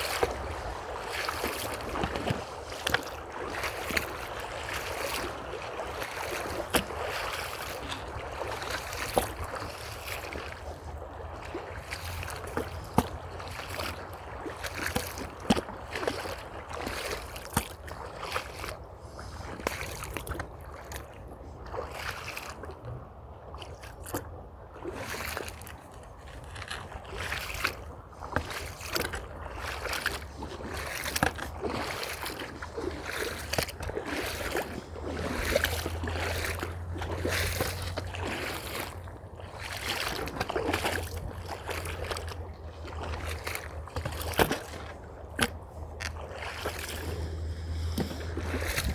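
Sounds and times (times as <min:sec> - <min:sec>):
creek water flowing: 0:00.0 - 0:22.8, 0:24.7 - 0:48.9
footsteps on a trail: 0:45.4 - 0:48.9.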